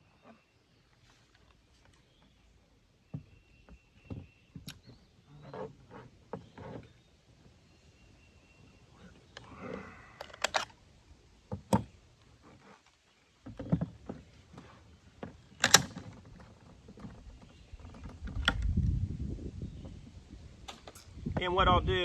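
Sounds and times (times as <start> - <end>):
rifle parts clicking and knocking: 15.6 - 16.2.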